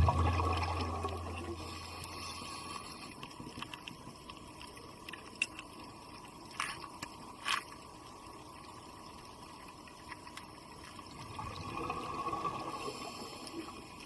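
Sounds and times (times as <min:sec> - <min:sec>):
low underwater rumble: 0:00.0 - 0:02.6
faint underwater crackling: 0:00.0 - 0:14.0.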